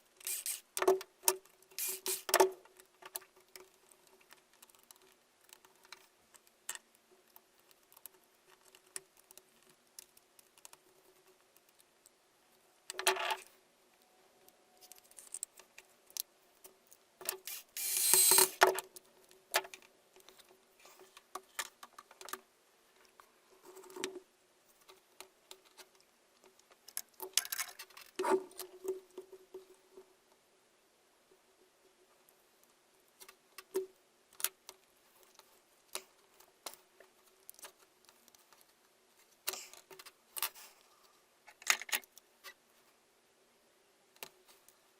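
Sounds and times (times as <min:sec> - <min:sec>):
faint steady hum: 0:00.0 - 0:44.9
rustling or scraping bursts: 0:00.2 - 0:00.7.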